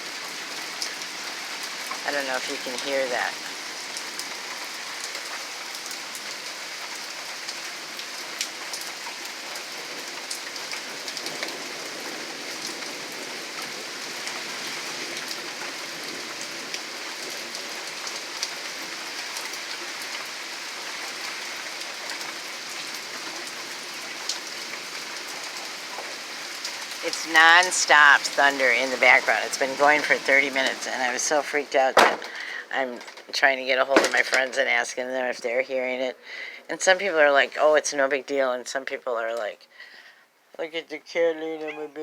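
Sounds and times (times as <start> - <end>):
rain pattering on surfaces: 0.0 - 42.0
rain drop ticks: 0.2 - 35.7.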